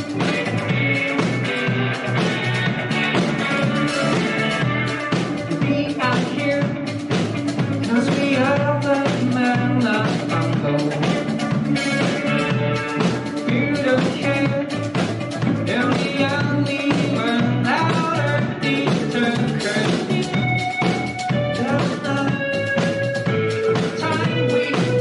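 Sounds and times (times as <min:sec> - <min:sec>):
drum beat: 0:00.0 - 0:25.0
person singing: 0:00.0 - 0:25.0
rock band playing live: 0:00.0 - 0:25.0.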